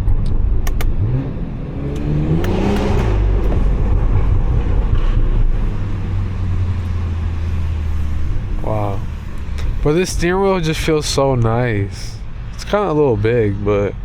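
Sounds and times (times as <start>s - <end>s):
car engine accelerating: 0.0s - 14.0s
sharp clicks: 0.2s - 1.0s.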